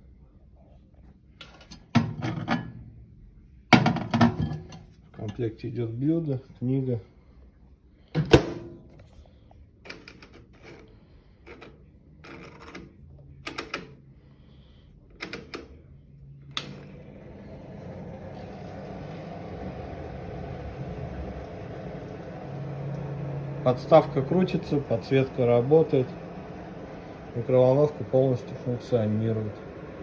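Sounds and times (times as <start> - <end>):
microwave humming: 1.4 - 5.4, 8.1 - 9.2, 15.2 - 30.0.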